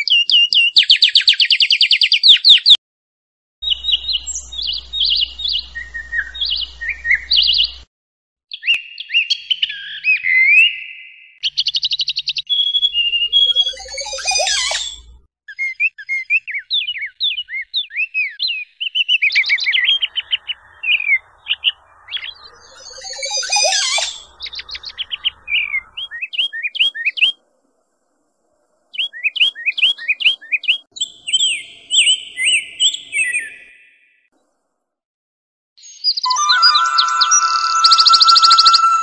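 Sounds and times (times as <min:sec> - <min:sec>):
small birds chirping: 0:00.0 - 0:02.8, 0:03.6 - 0:07.9, 0:08.5 - 0:27.4, 0:28.6 - 0:34.3, 0:35.8 - 0:39.0
high thin whistles: 0:36.2 - 0:39.0.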